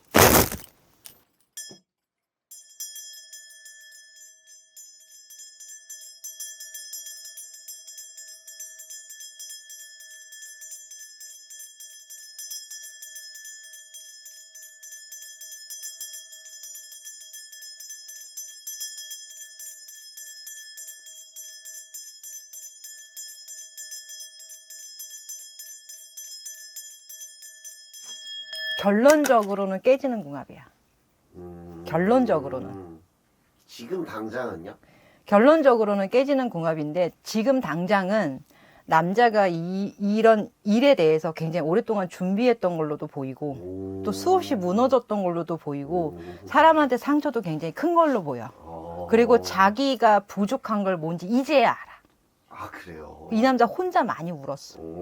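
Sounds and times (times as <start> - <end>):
brass bells jingling: 44.2 - 50.2.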